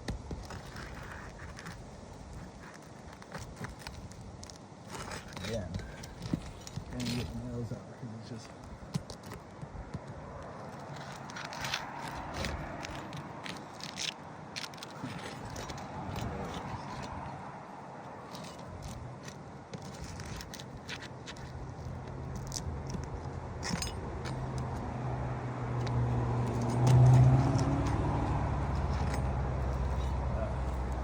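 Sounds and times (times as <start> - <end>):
vehicle engine hum: 9.8 - 31.0.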